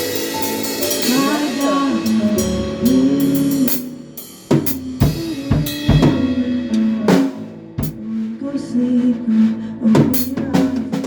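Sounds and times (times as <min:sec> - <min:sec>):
drum fill with cymbal crashes: 0:00.0 - 0:08.2
live band music: 0:00.0 - 0:08.4.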